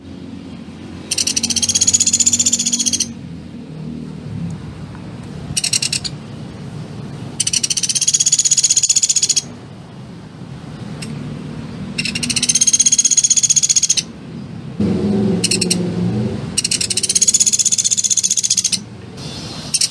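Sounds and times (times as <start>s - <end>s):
songbird high trill: 1.1s - 3.2s, 7.4s - 9.5s, 12.0s - 14.1s, 16.6s - 19.9s.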